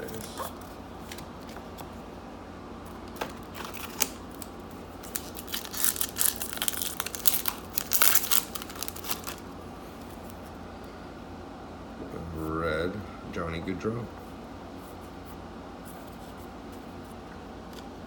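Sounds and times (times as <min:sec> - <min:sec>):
foil wrapper crinkling: 0:03.3 - 0:09.5.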